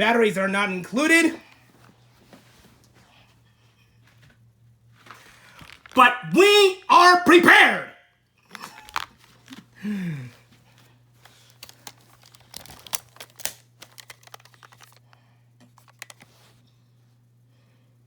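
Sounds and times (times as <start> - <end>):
plastic packaging clicks and crinkles: 5.0 - 6.0, 8.5 - 9.8, 11.2 - 16.5.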